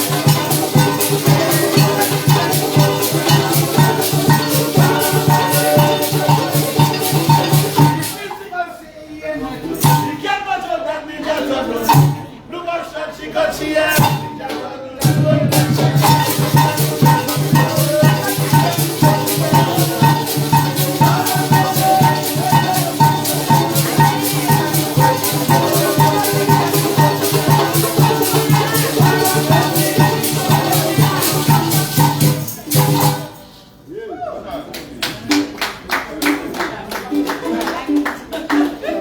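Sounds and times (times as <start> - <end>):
maracas shaking: 0.0 - 8.8, 9.6 - 10.4, 11.4 - 12.5, 13.8 - 33.8.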